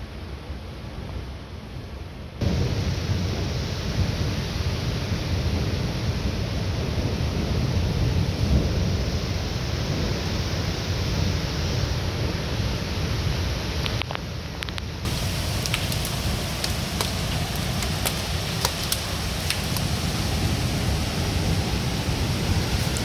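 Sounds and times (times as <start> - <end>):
heavy rain: 2.4 - 12.3, 15.1 - 23.0
precipitation ticking on surfaces: 15.1 - 21.2
storm wind buffeting microphone: 15.1 - 23.0.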